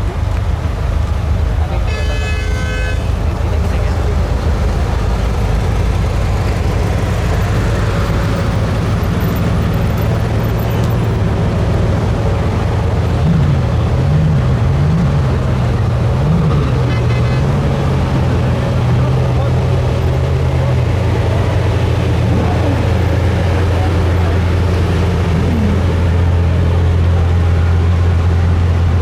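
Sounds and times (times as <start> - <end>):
car engine idling: 0.0 - 29.0
engine throttle blips: 0.0 - 29.0
street traffic: 0.0 - 29.0.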